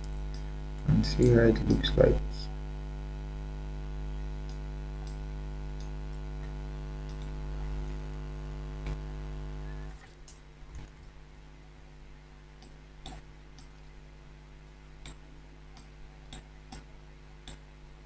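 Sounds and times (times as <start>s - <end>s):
electrical mains hum: 0.0s - 18.0s
computer mouse clicks: 5.8s - 7.3s, 15.8s - 17.6s.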